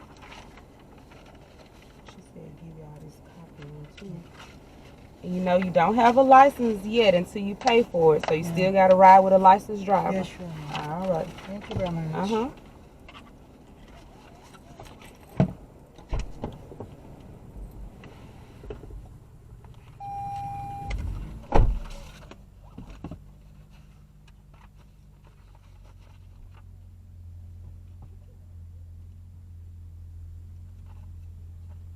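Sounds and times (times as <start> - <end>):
low steady hum: 0.0 - 31.9
car door shutting: 15.4 - 16.9, 20.0 - 22.2
electronic beep: 20.0 - 21.1.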